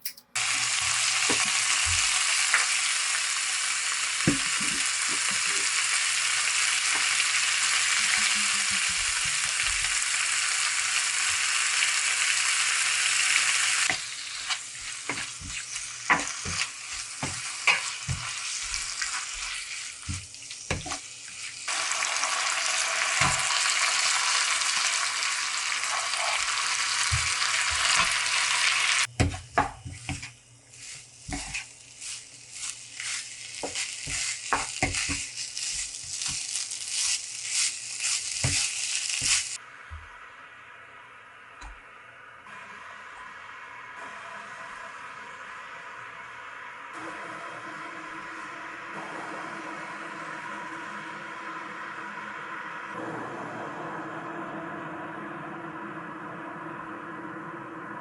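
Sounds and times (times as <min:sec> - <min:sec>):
kitchen utensils clicking and knocking: 0:00.0 - 0:00.4
food sizzling in a frying pan: 0:00.4 - 0:40.3.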